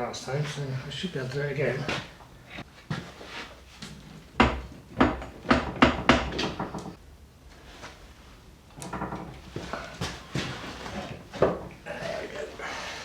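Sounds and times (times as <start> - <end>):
metal knocks and clunks: 4.4 - 7.0, 8.8 - 10.6.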